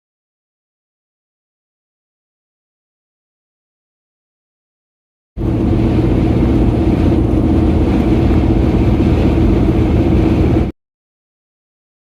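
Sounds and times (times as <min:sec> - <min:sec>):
vehicle engine droning: 0:05.4 - 0:10.7.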